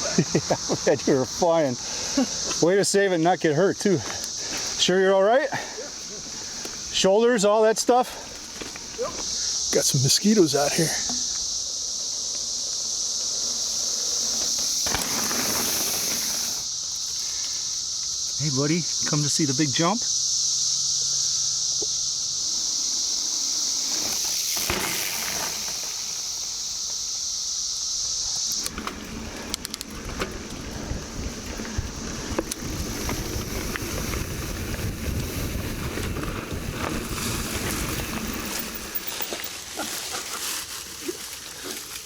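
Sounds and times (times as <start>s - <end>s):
cicadas droning: 0.0s - 42.0s
bike rolling over dirt trail: 8.1s - 9.4s, 10.2s - 17.2s, 22.3s - 27.2s, 28.1s - 42.0s
wind on microphone: 30.0s - 38.5s.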